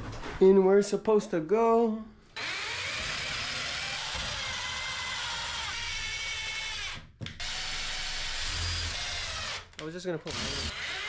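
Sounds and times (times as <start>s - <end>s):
power drill boring holes: 2.4s - 11.0s.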